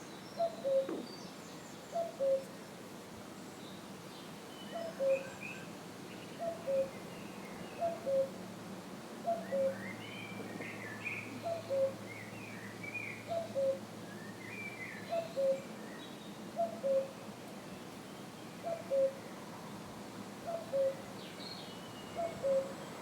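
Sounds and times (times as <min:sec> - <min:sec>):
cuckoo calling: 0:00.4 - 0:01.1, 0:11.4 - 0:12.0, 0:16.6 - 0:17.1, 0:18.7 - 0:19.2, 0:20.5 - 0:21.0, 0:22.2 - 0:22.8.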